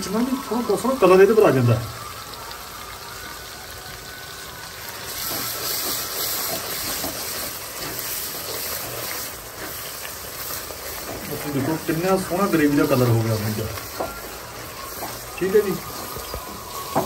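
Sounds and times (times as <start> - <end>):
masala sizzling in a pan: 0.0 - 17.0
wooden spatula stirring: 5.1 - 17.0.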